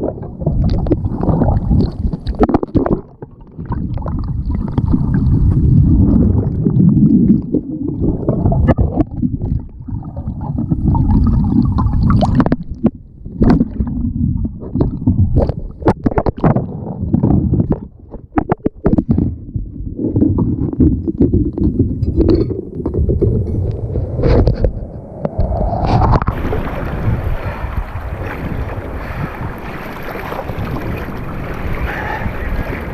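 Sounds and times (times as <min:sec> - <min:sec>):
water sloshing around kayak: 0:25.9 - 0:32.9.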